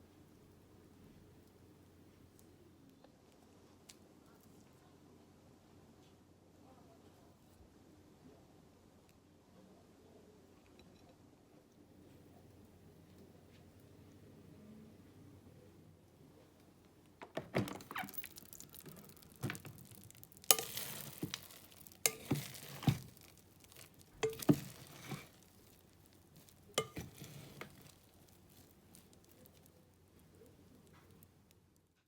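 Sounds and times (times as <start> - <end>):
utensil scraping cookware: 20.4 - 25.5, 26.8 - 28.1.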